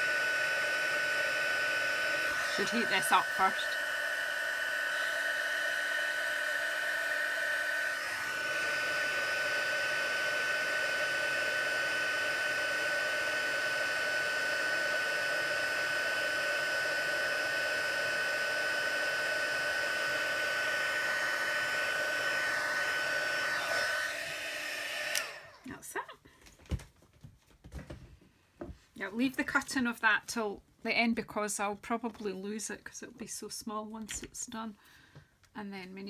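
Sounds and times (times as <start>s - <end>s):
heat tool blowing hot air: 0.0s - 25.7s.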